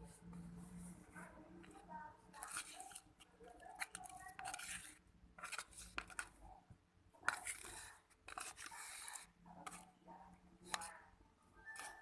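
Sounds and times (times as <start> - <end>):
spoon scraping in a bowl: 2.3 - 6.3, 7.2 - 9.9, 11.7 - 12.0.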